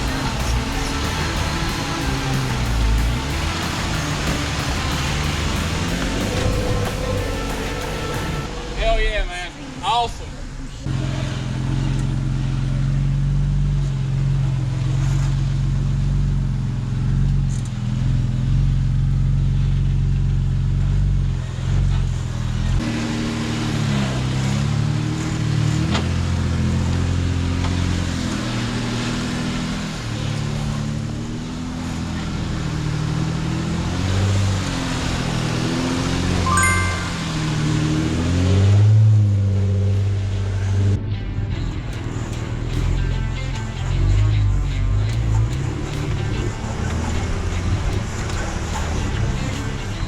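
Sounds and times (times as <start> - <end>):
car engine running: 0.0 - 8.5.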